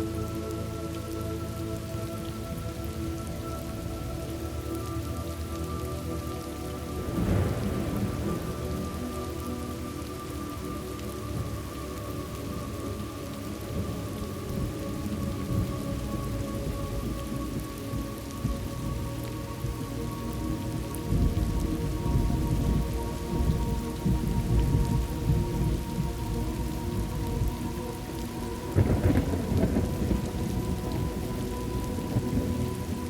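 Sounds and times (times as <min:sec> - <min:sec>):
rain falling: 0:00.0 - 0:33.0
thunder rumbling: 0:06.7 - 0:33.0.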